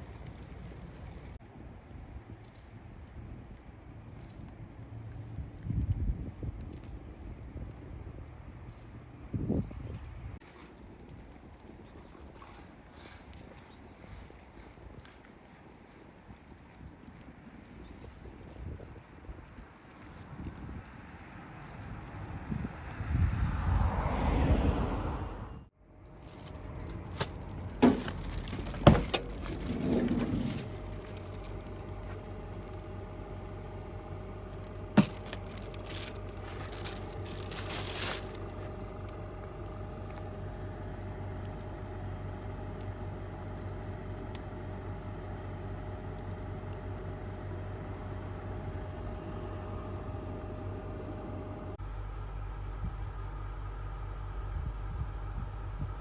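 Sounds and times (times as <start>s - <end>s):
jangling and rustling: 26.1s - 33.8s, 34.5s - 38.8s.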